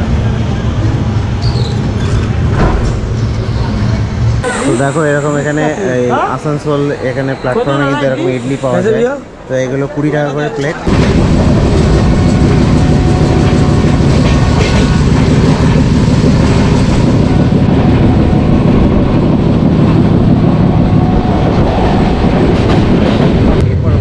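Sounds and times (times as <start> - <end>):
train wheels rumbling on rails: 10.9 - 24.0.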